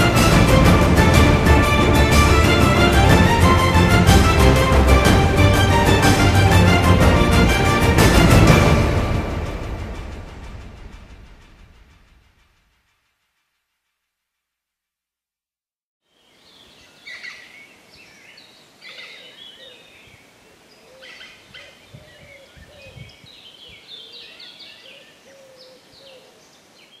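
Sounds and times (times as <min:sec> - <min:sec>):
birds chirping and trilling: 0:16.2 - 0:27.0.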